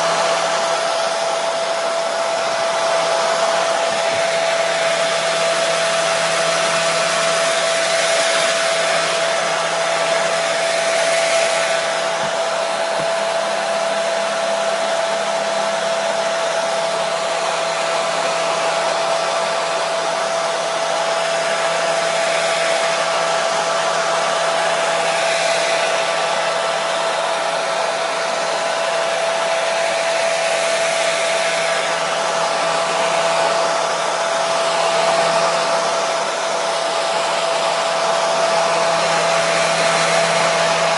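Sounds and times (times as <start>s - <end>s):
hair dryer running: 0.0s - 40.9s.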